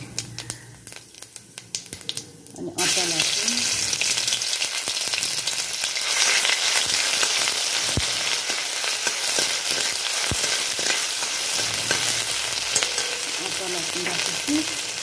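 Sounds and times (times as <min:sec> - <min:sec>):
spices sizzling in hot oil: 0:00.0 - 0:15.0
steel ladle stirring in wok: 0:05.9 - 0:13.4.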